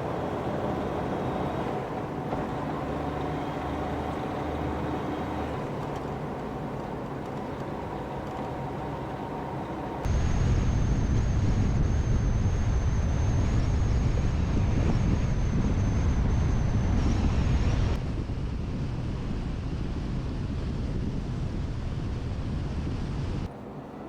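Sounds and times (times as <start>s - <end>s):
road and engine rumble: 0.0s - 24.0s
wind on microphone: 10.1s - 23.5s.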